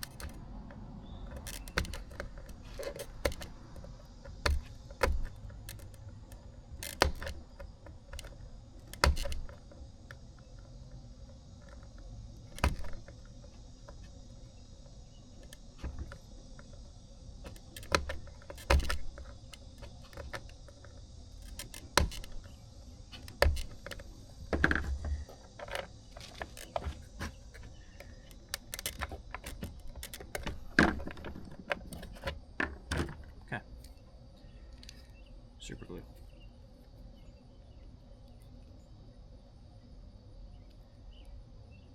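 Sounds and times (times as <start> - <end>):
tools clicking on a workbench: 0.0 - 10.2, 17.4 - 22.5, 23.2 - 33.2
crickets chirring: 0.0 - 41.9.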